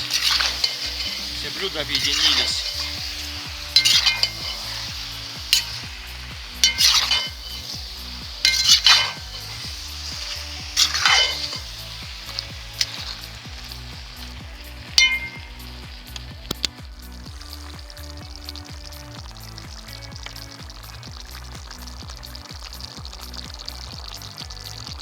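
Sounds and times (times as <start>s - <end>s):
metal utensil scraping a pot: 0.0s - 15.8s
stew sizzling in a pot: 0.0s - 25.0s.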